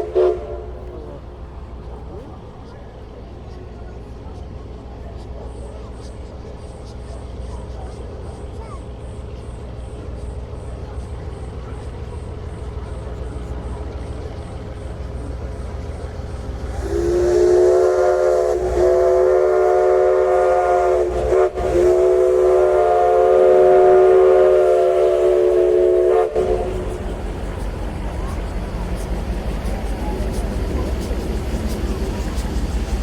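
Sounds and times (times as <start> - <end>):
steam whistle blowing chord: 0.0 - 0.8, 16.7 - 26.8
train rumbling: 0.0 - 33.0.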